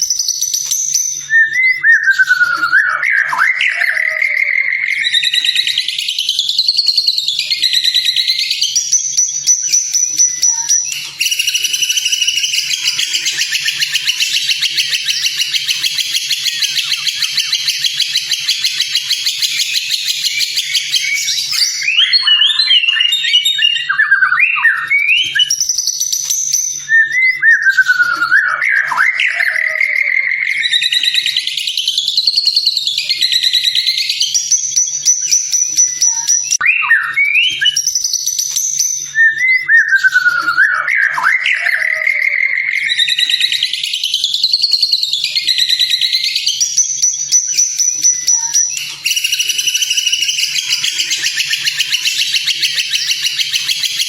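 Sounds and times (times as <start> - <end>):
bird whistling song: 0.0 - 54.0
bird chattering: 9.5 - 23.9, 47.3 - 54.0.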